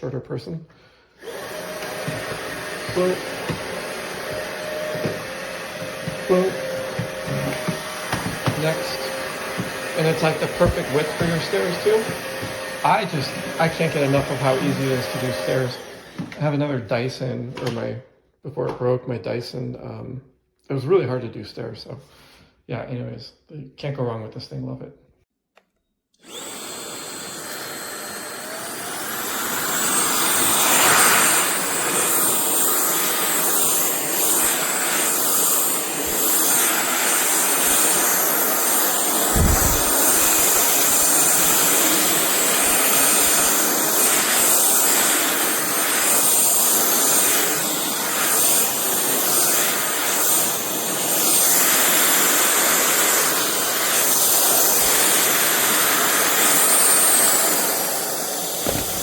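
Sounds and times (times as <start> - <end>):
vacuum cleaner running: 0.8 - 17.8, 26.2 - 59.0
short low bump: 39.3 - 40.7.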